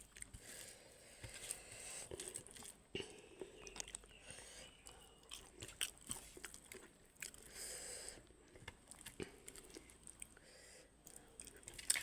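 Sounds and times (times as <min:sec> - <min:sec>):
person chewing food: 0:00.0 - 0:12.0
faint clicks and crunches: 0:03.4 - 0:04.2.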